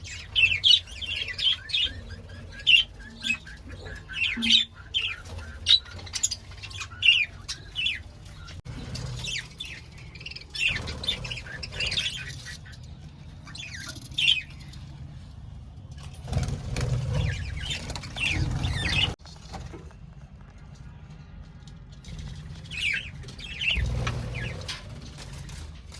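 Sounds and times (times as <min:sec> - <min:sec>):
budgerigars chattering: 0:00.1 - 0:09.8, 0:10.5 - 0:12.8.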